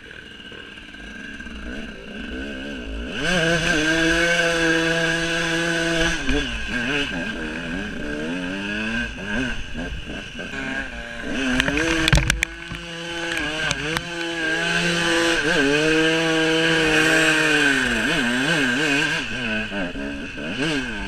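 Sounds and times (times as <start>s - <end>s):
motorcycle engine revving: 0.0s - 21.0s
sharp knocks and clatter: 11.5s - 14.3s.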